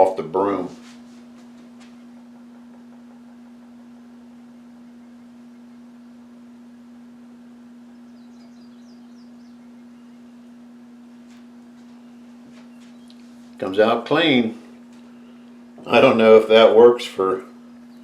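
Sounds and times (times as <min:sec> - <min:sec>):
steady electrical hum: 0:00.0 - 0:18.0
faint high bird chirps: 0:07.8 - 0:10.7.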